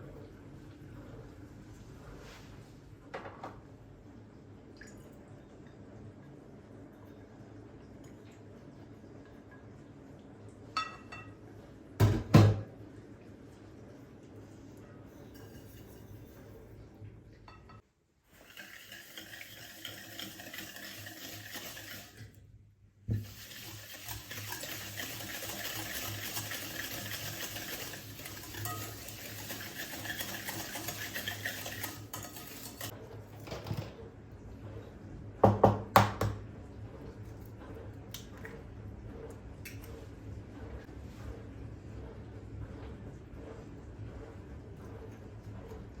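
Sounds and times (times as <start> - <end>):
utensil scraping in a bowl: 15.1 - 16.7, 18.4 - 22.2, 23.2 - 33.0.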